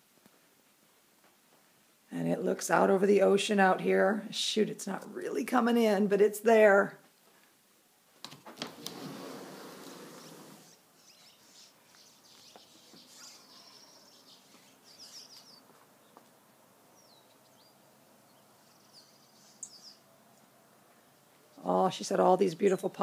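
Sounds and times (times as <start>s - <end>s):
rustling noise: 7.0s - 10.8s
small birds chirping: 9.6s - 23.0s.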